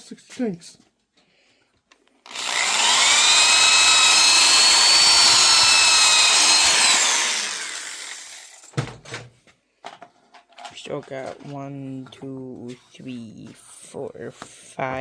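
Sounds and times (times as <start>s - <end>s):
power drill whining: 2.2s - 8.8s.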